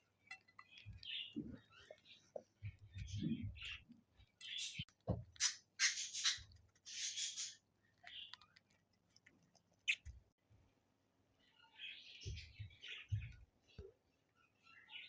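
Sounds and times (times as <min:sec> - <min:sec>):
budgerigars making raspy noises: 0:05.4 - 0:07.6.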